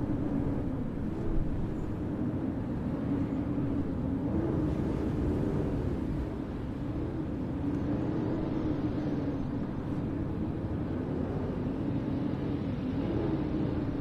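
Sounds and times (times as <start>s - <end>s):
blizzard wind howling: 0.0s - 14.0s.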